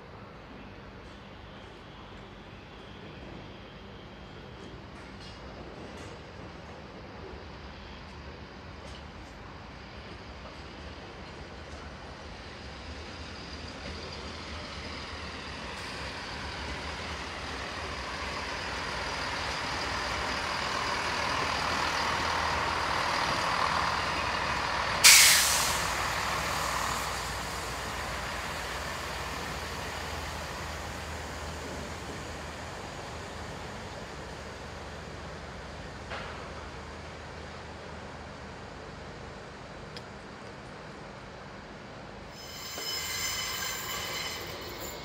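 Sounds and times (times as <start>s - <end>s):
train arriving: 0.0s - 45.0s
brakes hissing air: 25.0s - 28.7s.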